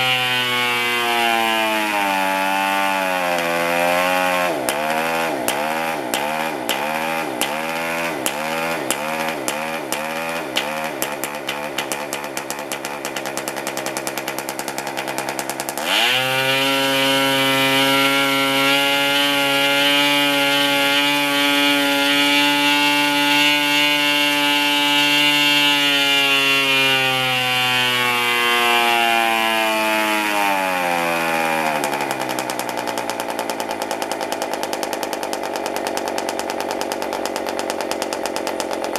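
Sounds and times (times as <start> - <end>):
model engine spinning propeller: 4.4 - 23.1, 31.4 - 38.9.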